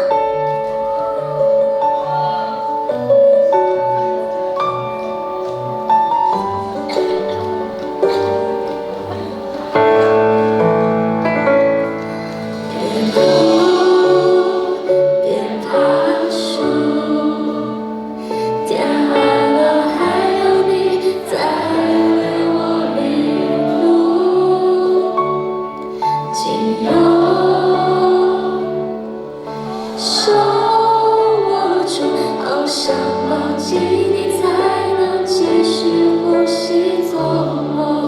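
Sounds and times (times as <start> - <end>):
woman singing lead: 0.0 - 4.5, 12.4 - 38.0
audience singing along: 0.0 - 38.0
pop song over backing track: 11.7 - 38.0.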